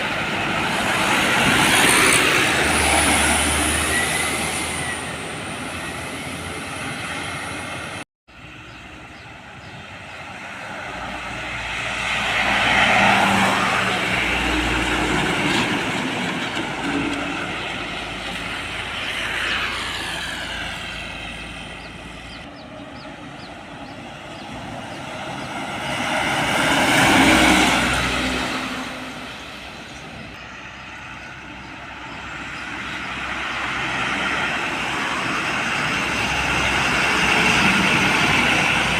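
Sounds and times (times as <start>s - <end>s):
heavy vehicles passing: 0.0s - 38.9s.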